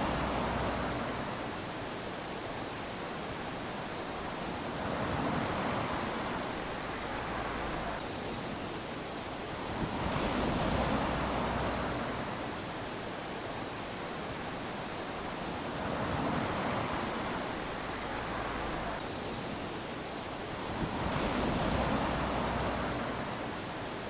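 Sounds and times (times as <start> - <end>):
waves lapping on sandy shore: 0.0 - 24.0.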